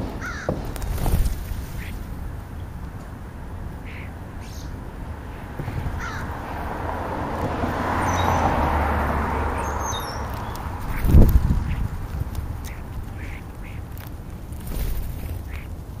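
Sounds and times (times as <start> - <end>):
crows cawing: 0.2 - 0.6, 3.8 - 4.3, 5.5 - 6.6, 12.6 - 13.9.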